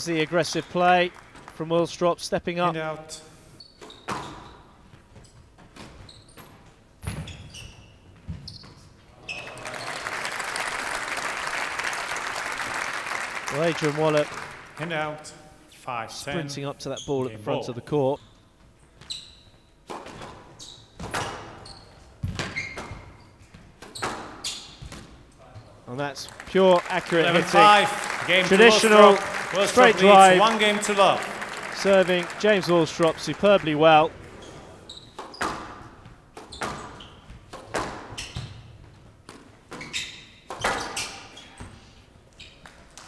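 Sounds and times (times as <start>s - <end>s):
shoes squeaking on wooden floor: 3.6s - 9.6s, 18.2s - 25.8s, 34.1s - 42.8s.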